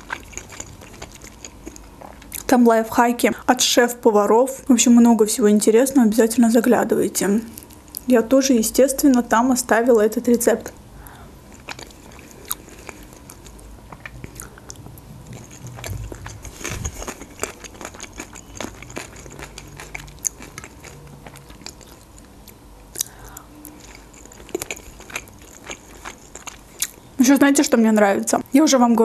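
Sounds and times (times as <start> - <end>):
close chewing with mouth smacks: 0.0 - 2.5, 11.5 - 27.1.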